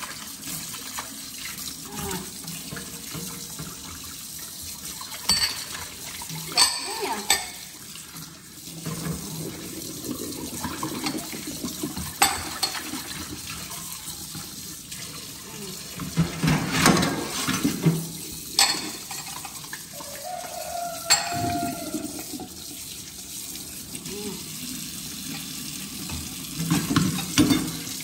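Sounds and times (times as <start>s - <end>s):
faucet running into steel sink: 0.0s - 28.0s
dishes clinking together: 5.2s - 5.8s, 6.5s - 7.7s, 12.2s - 12.9s, 18.6s - 19.6s, 21.1s - 22.0s, 26.7s - 27.9s.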